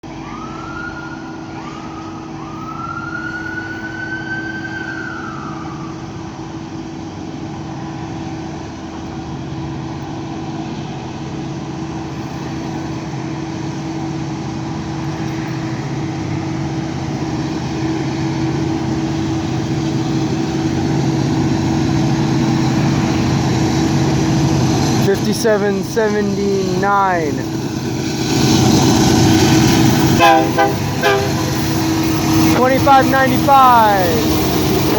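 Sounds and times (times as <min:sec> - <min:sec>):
locomotive engines rumbling: 0:00.0 - 0:34.9
locomotive horn blasts: 0:29.9 - 0:34.9.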